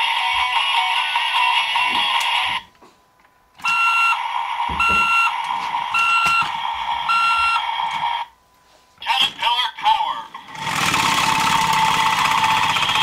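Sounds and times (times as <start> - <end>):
electronic beeps: 6.0 - 7.7.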